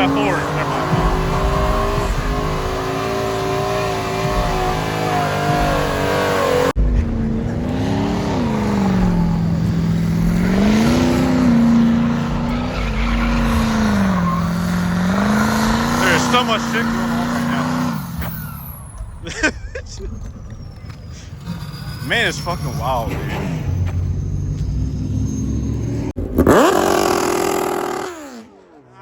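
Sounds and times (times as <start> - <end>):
tires spinning: 0.0 - 29.0
truck engine revving high: 0.0 - 29.0.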